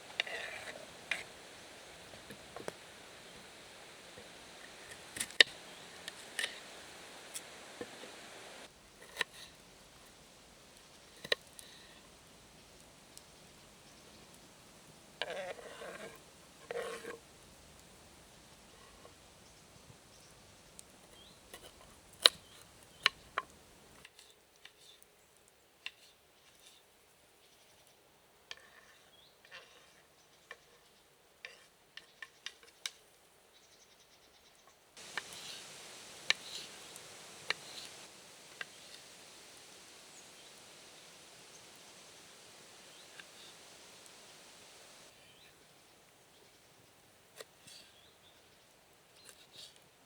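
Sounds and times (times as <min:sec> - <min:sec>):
quiet hiss: 0:00.0 - 0:50.0.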